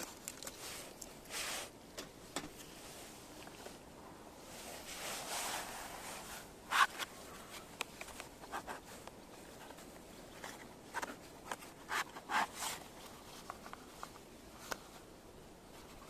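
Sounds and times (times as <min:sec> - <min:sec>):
rustling and handling noises: 0:00.0 - 0:16.0.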